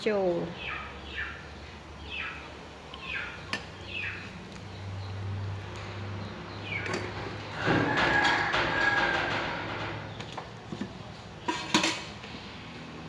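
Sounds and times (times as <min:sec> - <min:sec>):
bird chirping: 0:00.5 - 0:07.3.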